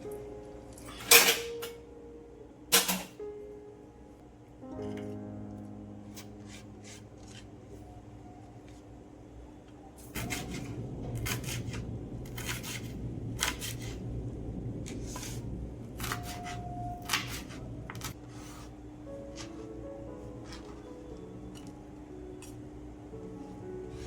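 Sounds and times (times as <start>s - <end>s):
kitchen utensils and dishes clattering: 0.8s - 1.8s.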